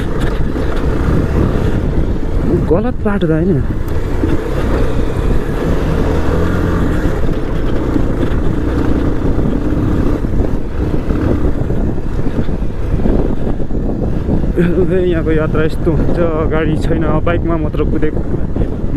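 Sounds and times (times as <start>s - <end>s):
motorcycle engine running: 0.0s - 18.9s.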